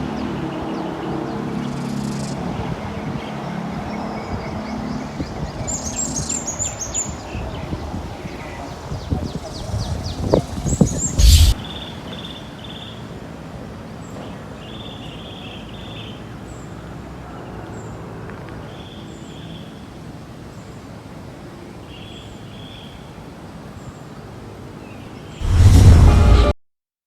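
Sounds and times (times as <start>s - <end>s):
birds chirping: 3.2s - 13.0s
loud burst of sound: 11.2s - 11.6s, 25.4s - 26.6s.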